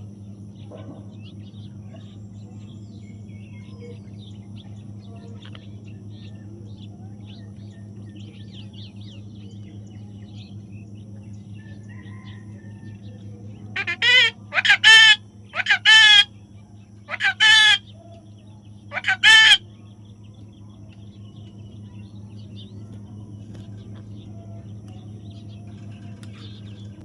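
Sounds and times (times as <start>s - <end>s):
birds chirping faintly: 0.0s - 27.0s
steady low hum: 0.0s - 27.0s.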